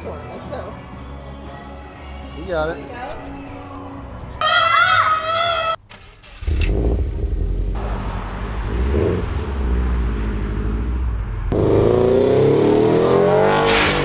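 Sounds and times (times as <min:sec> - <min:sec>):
vehicle engine revving: 0:06.2 - 0:14.0.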